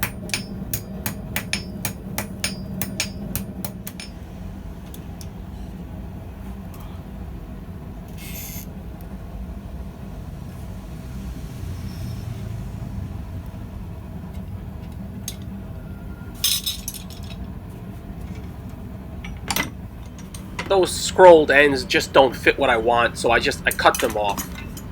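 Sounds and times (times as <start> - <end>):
steady low rumble: 9.1 - 24.9
metallic clinks of tools: 23.7 - 24.9.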